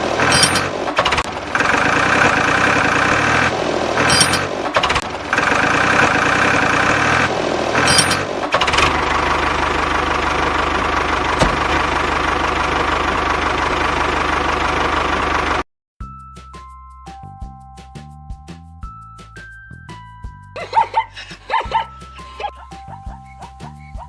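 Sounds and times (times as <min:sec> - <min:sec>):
tractor engine clattering: 0:00.0 - 0:15.6
music: 0:16.0 - 0:24.0.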